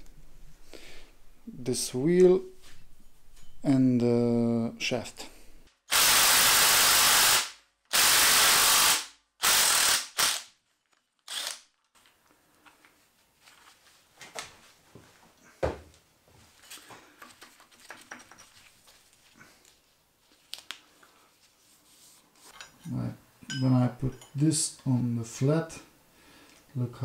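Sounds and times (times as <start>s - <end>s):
tools and parts clinking: 3.1s - 3.6s, 16.6s - 18.8s, 22.5s - 24.9s
compressed-air tool bursts: 5.9s - 10.5s, 11.3s - 11.6s.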